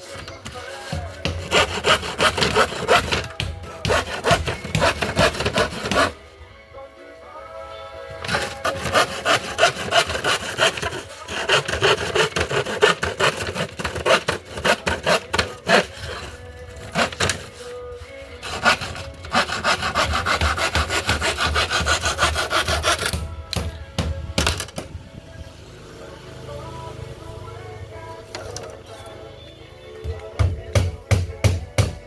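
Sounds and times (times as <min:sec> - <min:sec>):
handsaw cutting wood: 0:00.0 - 0:06.2, 0:08.2 - 0:23.3.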